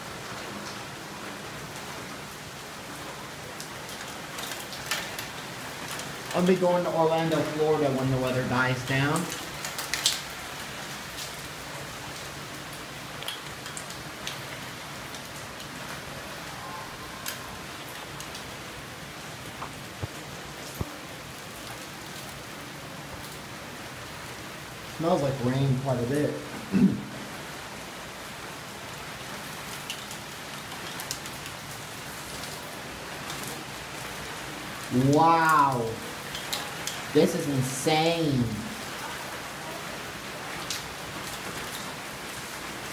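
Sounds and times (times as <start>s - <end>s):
heavy rain: 0.0s - 42.9s
rain drop taps: 9.1s - 10.3s, 13.2s - 14.4s, 19.5s - 21.0s, 35.5s - 37.0s.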